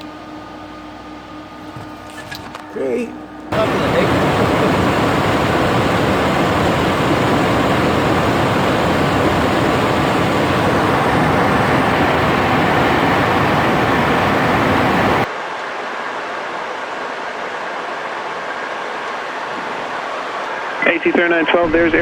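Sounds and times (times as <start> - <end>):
jet engine rushing noise: 3.5 - 15.3, 20.8 - 22.0.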